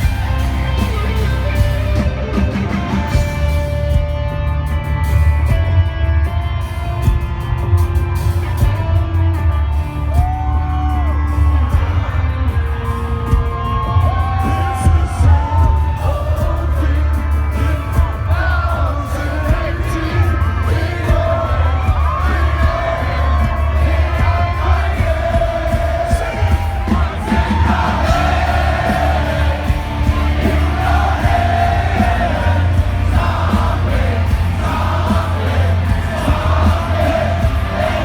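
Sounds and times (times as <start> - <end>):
heavy metal band playing live: 0.0 - 38.0
crowd whooping: 21.7 - 38.0.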